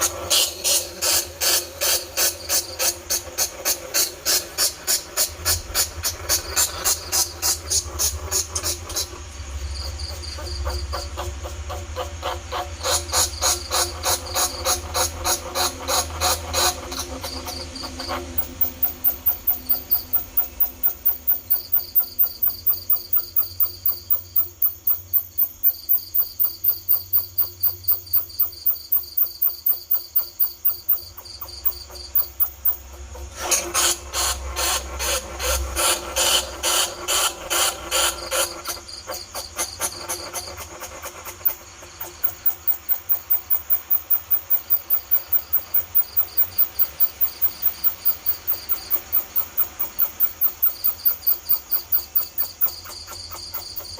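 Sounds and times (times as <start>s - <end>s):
rat squeaking: 12.0s - 32.9s, 41.4s - 53.9s.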